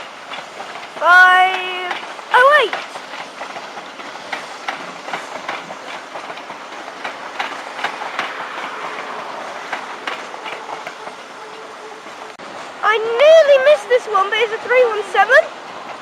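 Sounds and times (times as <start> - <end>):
train rolling noise: 0.0 - 16.0
train wheels clicking over rail joints: 0.0 - 16.0.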